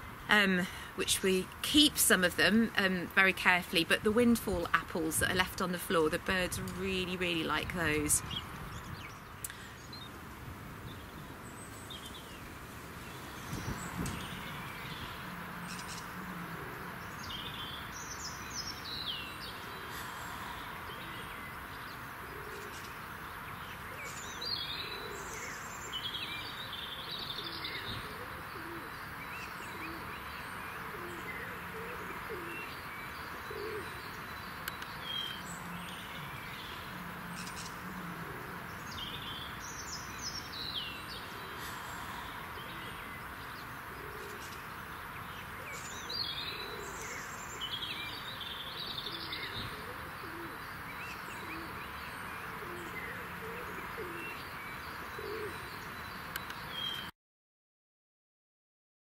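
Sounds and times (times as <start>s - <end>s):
steady background hiss: 0.0s - 57.0s
birds singing: 0.0s - 57.1s
low cooing notes: 36.9s - 39.2s.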